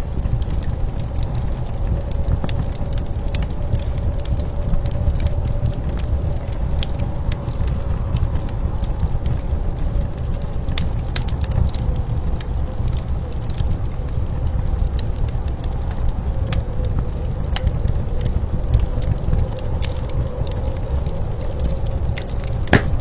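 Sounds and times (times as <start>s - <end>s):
wood fire crackling and popping: 22.2s - 23.0s.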